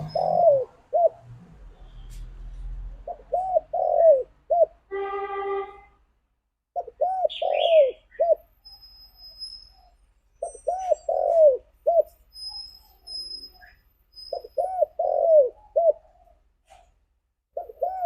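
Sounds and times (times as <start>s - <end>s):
faint high bird chirps: 0.0s - 1.1s, 6.8s - 16.8s
dove cooing: 0.0s - 1.3s, 3.0s - 4.8s, 6.8s - 8.5s, 10.4s - 12.1s, 14.4s - 16.4s, 17.5s - 18.0s.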